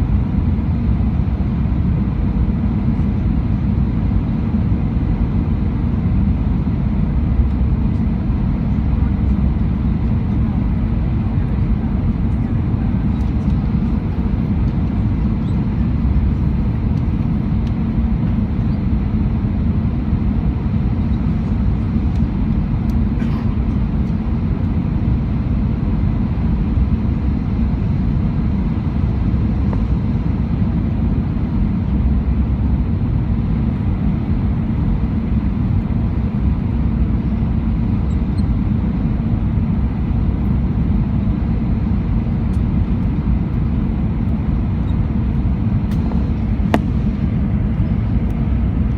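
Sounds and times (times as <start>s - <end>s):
airliner cabin engine rumble: 0.0s - 48.9s
faint engine whine: 0.0s - 48.9s.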